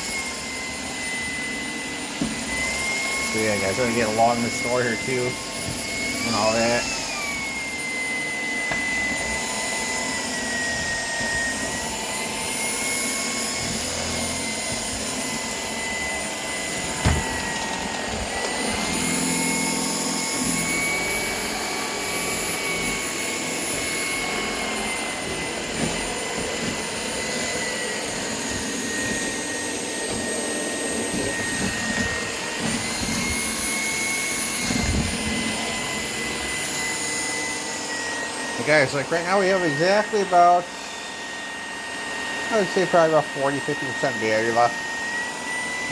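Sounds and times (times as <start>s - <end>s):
stick vacuum motor whine: 0.0s - 45.9s
knock: 17.0s - 17.4s.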